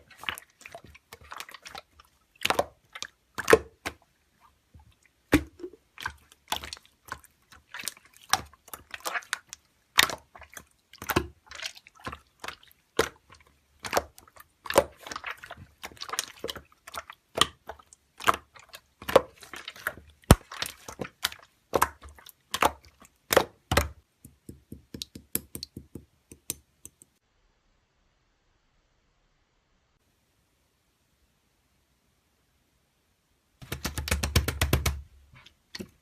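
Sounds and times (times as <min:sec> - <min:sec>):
slime squishing: 0:00.0 - 0:25.7.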